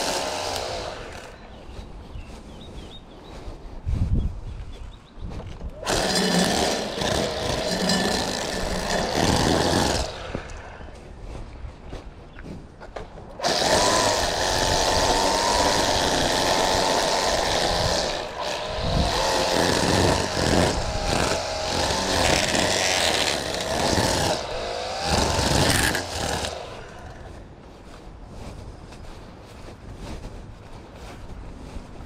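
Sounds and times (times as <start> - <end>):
small petrol engine revving: 0.0 - 1.4, 5.8 - 10.4, 13.4 - 27.2.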